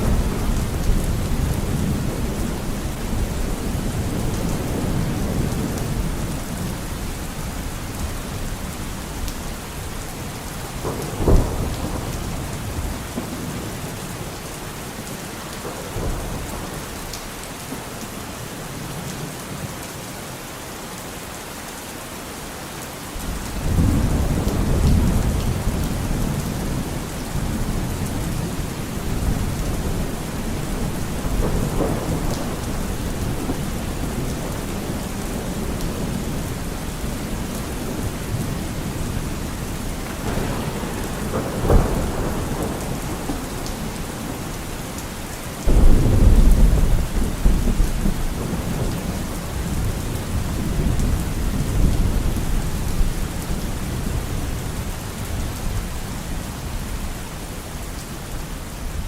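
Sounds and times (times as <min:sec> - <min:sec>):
steady rain: 0:00.0 - 0:59.0
low thunder rumble: 0:10.2 - 0:14.0, 0:23.2 - 0:55.8
thunder clap: 0:10.7 - 0:13.9, 0:23.2 - 0:45.0, 0:45.7 - 0:53.1.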